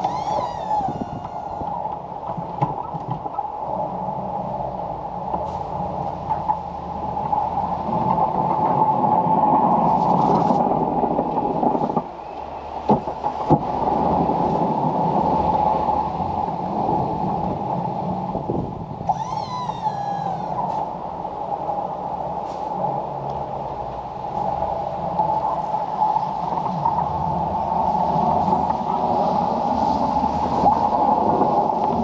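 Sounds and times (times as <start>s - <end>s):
falling squeal: 0.0s - 1.8s, 19.1s - 20.9s.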